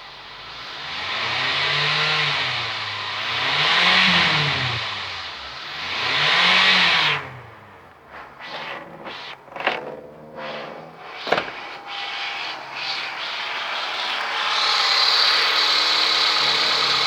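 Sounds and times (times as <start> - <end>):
car engine revving: 0.1 - 17.0.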